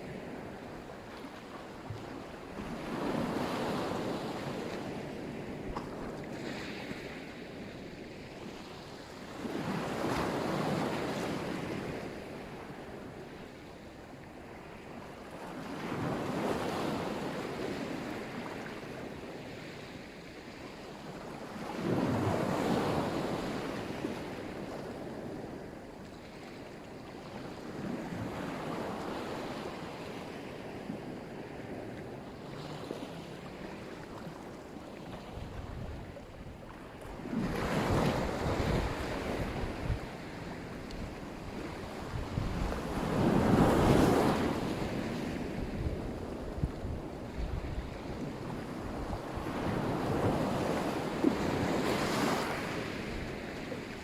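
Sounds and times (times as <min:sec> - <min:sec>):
waves breaking on shore: 0:00.0 - 0:54.0
wind rumbling on microphone: 0:30.3 - 0:54.0.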